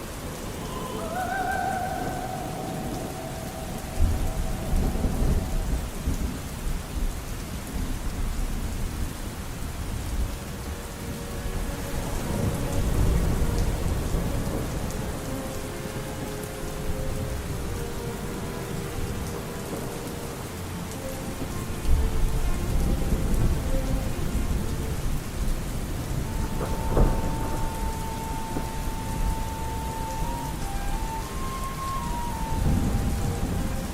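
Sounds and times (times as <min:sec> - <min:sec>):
heavy rain: 0:00.0 - 0:33.9
thunder rumbling: 0:00.0 - 0:33.9.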